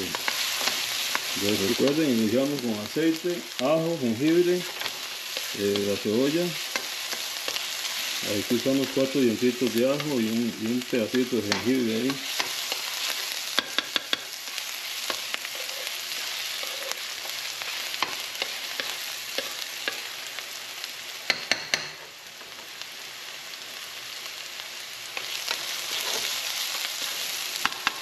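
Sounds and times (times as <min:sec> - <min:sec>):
food sizzling in hot oil: 0:00.0 - 0:28.0
spoon clicking against pan: 0:13.6 - 0:14.3.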